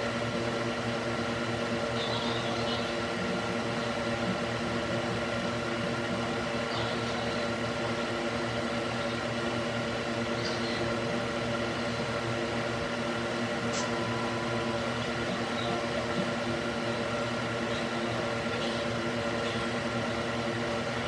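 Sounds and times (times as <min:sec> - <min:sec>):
electric fan whirring: 0:00.0 - 0:21.0.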